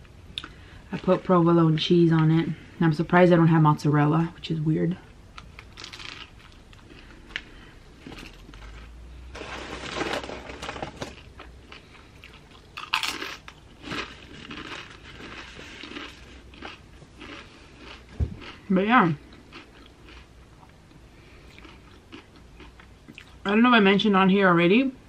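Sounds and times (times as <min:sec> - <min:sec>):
wet chewing of sandwich: 0:05.4 - 0:09.0, 0:11.0 - 0:23.4.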